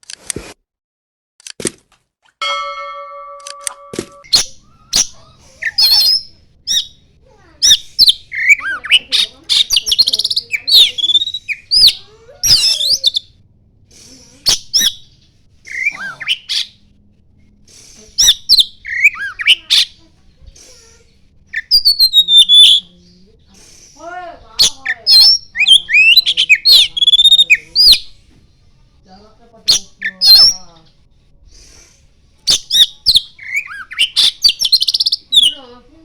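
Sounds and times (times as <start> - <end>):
songbird singing whistled phrases: 4.2 - 7.0, 7.6 - 13.3, 14.4 - 15.1, 15.7 - 16.8, 17.8 - 20.0, 21.5 - 24.0, 24.6 - 28.2, 29.7 - 31.0, 32.5 - 35.7.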